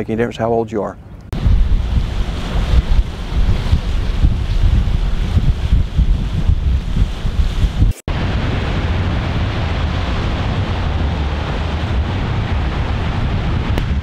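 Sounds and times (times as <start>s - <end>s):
rushing wind and water: 0.2s - 14.0s
wind buffeting microphone: 1.1s - 14.0s.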